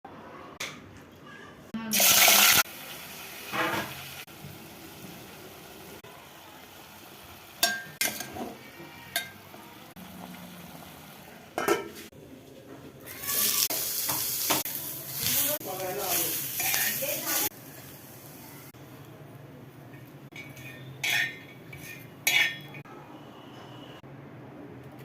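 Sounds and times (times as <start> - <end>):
food sizzling in a pan: 1.9 - 12.0, 13.0 - 18.8.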